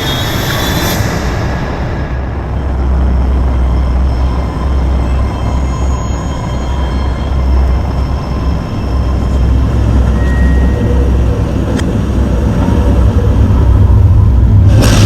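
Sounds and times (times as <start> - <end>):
loud low rumble: 0.0 - 15.0.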